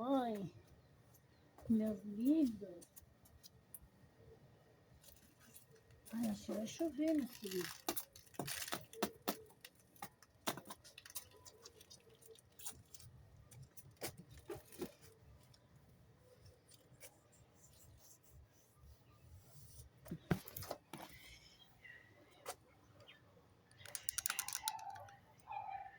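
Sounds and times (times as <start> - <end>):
birds clicking and pecking: 5.0 - 15.7, 22.4 - 25.7.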